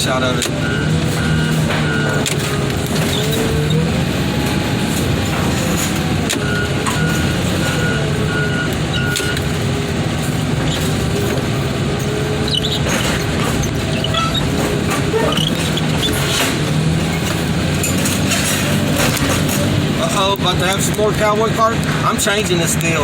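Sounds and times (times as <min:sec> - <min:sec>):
diesel engine under load: 0:00.0 - 0:23.0
reversing alarm beeping: 0:00.2 - 0:09.8.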